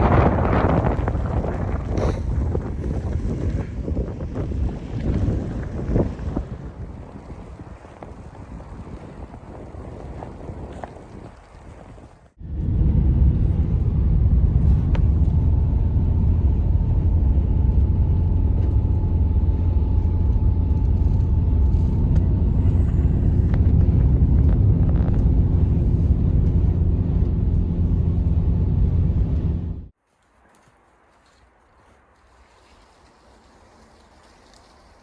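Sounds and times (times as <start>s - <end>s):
vehicle rumbling on the move: 12.4s - 29.9s.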